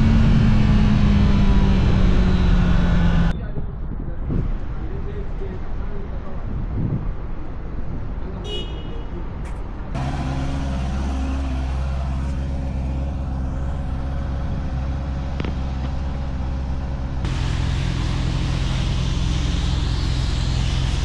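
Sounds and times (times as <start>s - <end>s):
motorcycle engine running: 0.0s - 3.3s, 10.0s - 21.0s.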